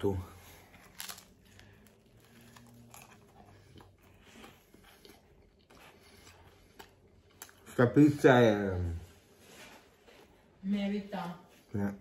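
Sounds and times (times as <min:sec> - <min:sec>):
faint chewing: 0:00.4 - 0:08.2.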